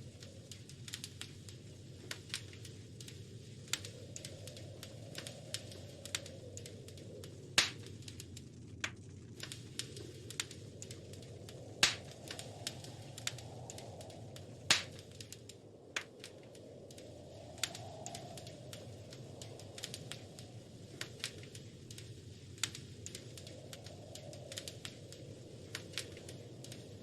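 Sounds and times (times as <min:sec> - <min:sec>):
low rush of flames: 0:00.0 - 0:27.0
wood fire crackling: 0:00.0 - 0:27.0
sharp pops of fire: 0:00.1 - 0:27.0.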